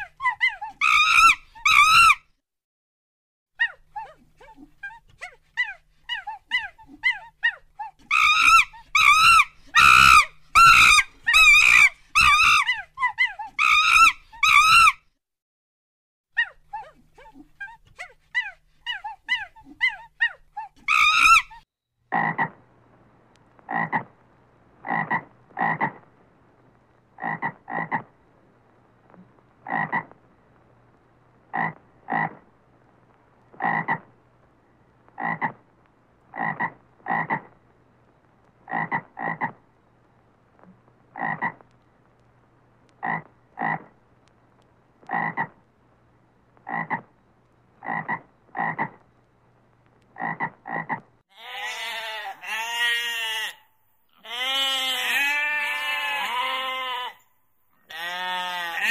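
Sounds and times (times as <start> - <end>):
toad croaking: 22.1 - 22.6, 23.7 - 24.1, 24.8 - 26.1, 27.2 - 28.1, 29.6 - 30.2, 31.5 - 32.5, 33.5 - 34.2, 35.2 - 35.6, 36.3 - 37.6, 38.7 - 39.6, 41.1 - 41.6, 43.0 - 43.9, 45.1 - 45.6, 46.6 - 47.1, 47.8 - 49.0, 50.2 - 53.6.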